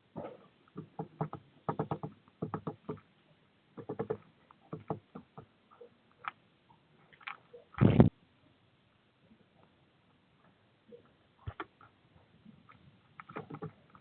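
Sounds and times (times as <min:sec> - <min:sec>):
bird tapping and scratching: 0:00.2 - 0:03.1, 0:03.8 - 0:05.5, 0:12.6 - 0:14.0.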